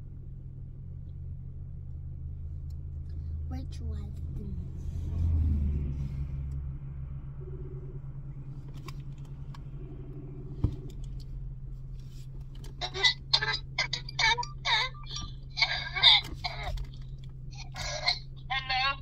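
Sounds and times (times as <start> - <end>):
car engine idling: 0.0 - 19.0
phone ringing tones: 7.4 - 8.0.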